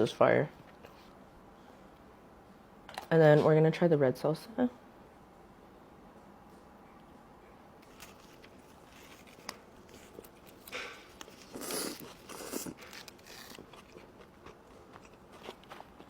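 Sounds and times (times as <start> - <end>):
food wrapping rustling: 7.8 - 14.2.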